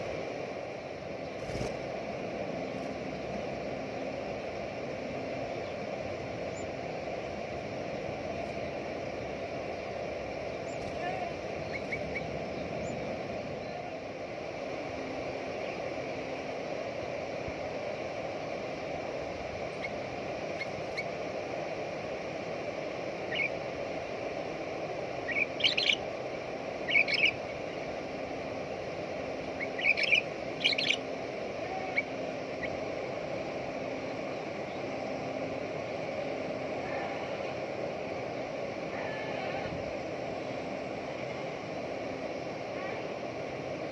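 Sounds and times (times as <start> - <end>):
steady background noise: 0.0 - 43.9
bird chirping calls: 10.6 - 13.8, 23.2 - 23.6, 25.2 - 26.1, 26.8 - 27.6, 29.5 - 32.8.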